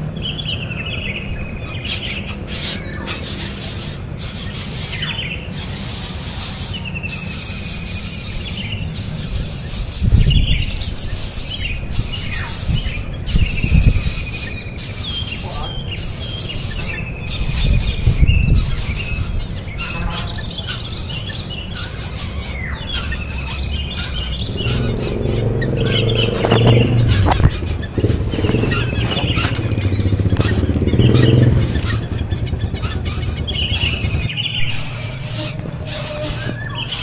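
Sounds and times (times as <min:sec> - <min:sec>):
birds chirping: 0:00.0 - 0:37.0
high insect buzz: 0:02.0 - 0:37.0
motor vehicle hum: 0:21.6 - 0:37.0
low rumbles: 0:23.2 - 0:37.0.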